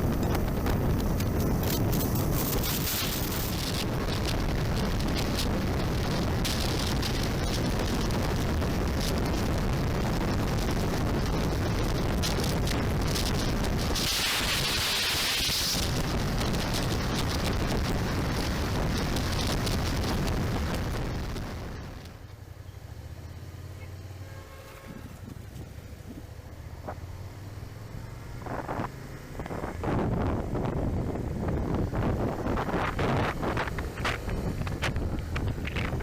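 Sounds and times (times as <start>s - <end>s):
wind buffeting microphone: 0.0s - 22.1s, 28.4s - 36.0s
low motorcycle rumble: 0.0s - 36.0s.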